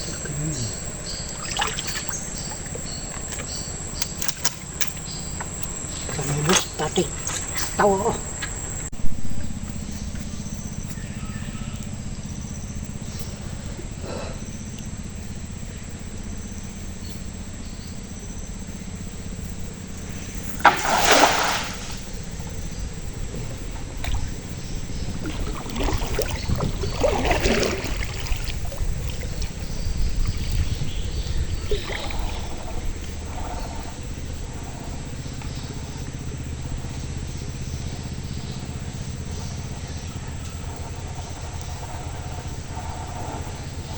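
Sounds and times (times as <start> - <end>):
water dripping: 0.0 - 8.8, 20.0 - 34.3
steady low hum: 0.0 - 43.9
water splashing and pouring: 1.1 - 5.0, 20.5 - 22.2, 23.4 - 29.6.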